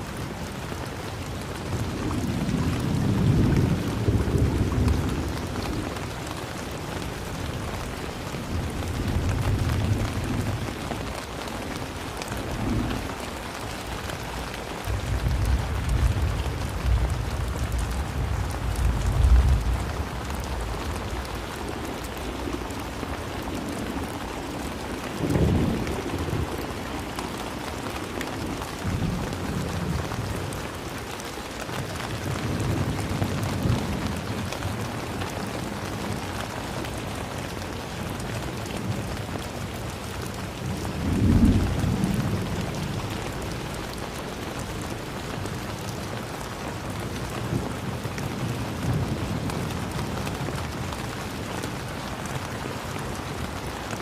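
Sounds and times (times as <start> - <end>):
steady rain falling: 0.0 - 54.0
thunder rumbling: 1.6 - 11.2, 39.7 - 54.0.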